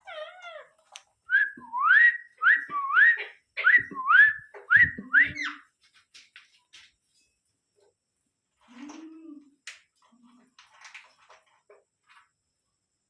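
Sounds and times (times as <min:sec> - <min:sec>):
parrot whistling: 0:01.3 - 0:05.6.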